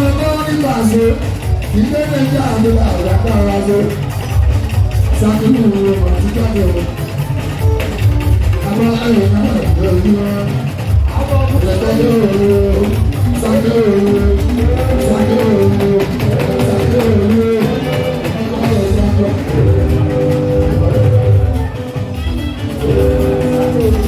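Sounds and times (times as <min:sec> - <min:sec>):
live band playing: 0:00.0 - 0:24.0
person singing: 0:08.6 - 0:24.0.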